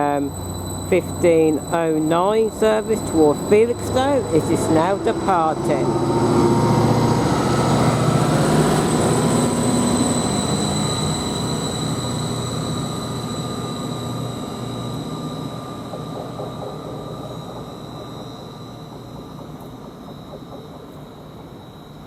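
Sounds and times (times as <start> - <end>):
steady high whine: 0.0 - 22.0
train pulling away: 0.0 - 22.0.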